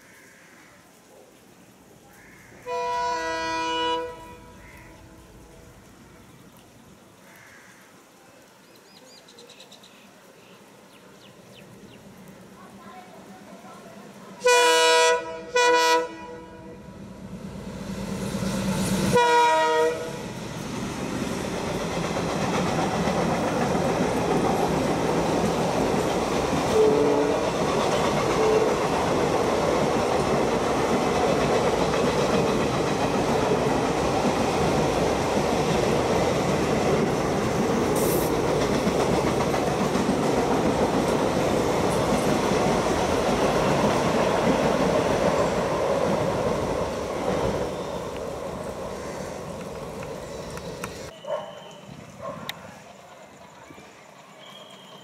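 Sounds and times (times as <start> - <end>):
locomotive horn blasts: 2.6 - 5.3, 14.4 - 16.9, 19.2 - 20.2, 26.8 - 27.4
train wheels rumbling on rails: 17.0 - 51.1.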